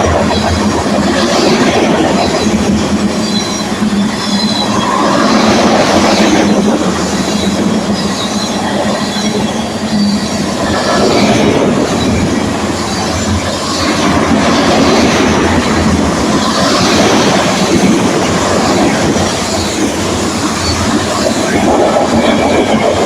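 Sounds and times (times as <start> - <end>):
train wheels rumbling on rails: 0.0 - 23.0
high wheel squeals: 2.2 - 14.0, 18.4 - 23.0.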